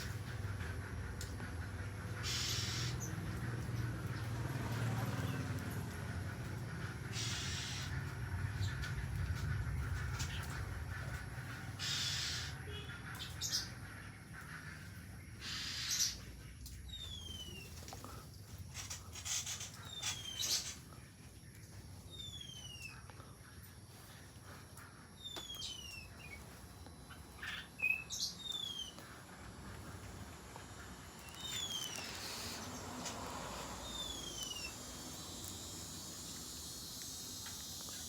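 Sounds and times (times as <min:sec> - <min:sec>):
birds whistling falling notes: 0:16.9 - 0:18.2, 0:18.8 - 0:20.8, 0:31.2 - 0:38.0
high bird chirps: 0:19.2 - 0:20.8, 0:22.1 - 0:23.0, 0:25.2 - 0:26.4, 0:27.1 - 0:29.0, 0:30.8 - 0:33.2, 0:33.8 - 0:38.0.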